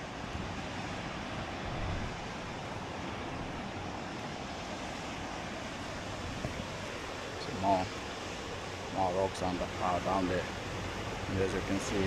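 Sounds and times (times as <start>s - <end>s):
wind rumbling on microphone: 0.0s - 9.2s
sea surf breaking on rocks: 0.0s - 12.0s.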